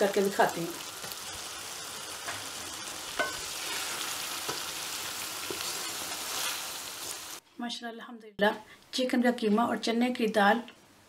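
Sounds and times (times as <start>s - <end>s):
food sizzling in a pan: 0.0s - 7.4s.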